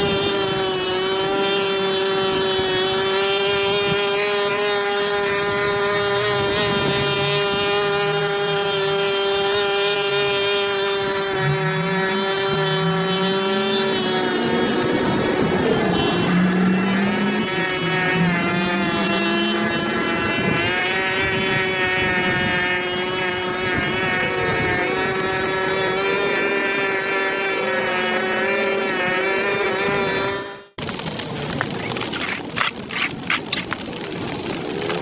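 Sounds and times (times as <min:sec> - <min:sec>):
small engine running: 0:00.0 - 0:35.0
wavering low tone: 0:11.4 - 0:21.4.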